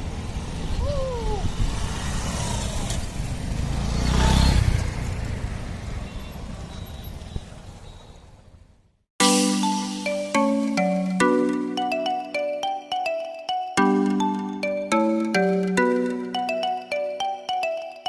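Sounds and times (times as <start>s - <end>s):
road vehicle rumble: 0.0s - 9.0s.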